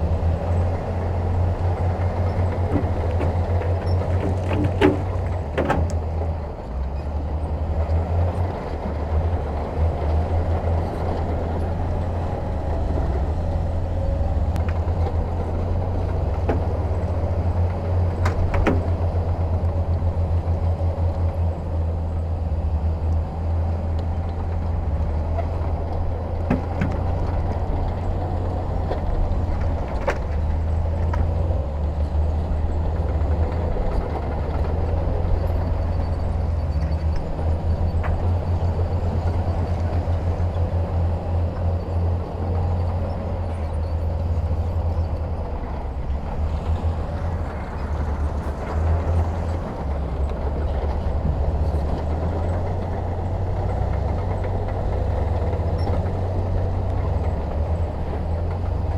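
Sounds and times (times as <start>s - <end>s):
diesel machinery engine rumble: 0.0s - 58.9s
sharp knocks: 2.4s - 6.1s, 16.3s - 17.4s, 18.1s - 19.1s, 26.4s - 27.4s.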